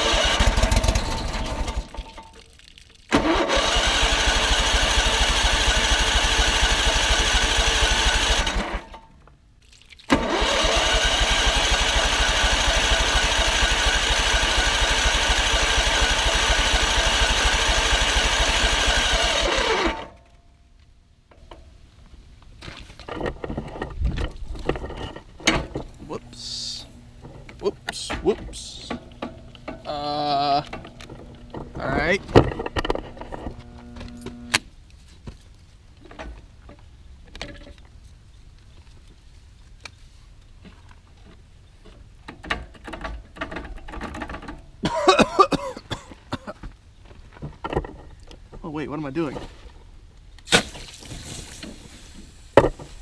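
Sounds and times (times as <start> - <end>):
electric starter cranking engine: 0.0 - 2.0, 3.1 - 9.0, 10.1 - 20.2, 25.5 - 34.6
quiet clattering: 22.4 - 26.1, 45.9 - 48.6.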